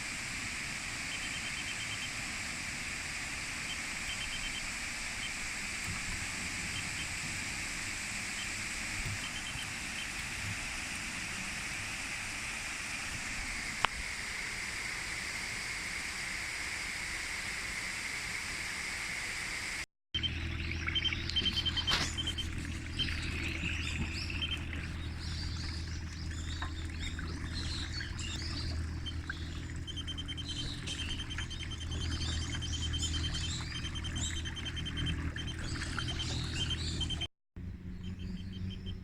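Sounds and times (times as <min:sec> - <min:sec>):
small birds chirping: 0:03.6 - 0:07.2, 0:08.1 - 0:10.6, 0:20.2 - 0:39.0
low steady hum: 0:20.2 - 0:39.0.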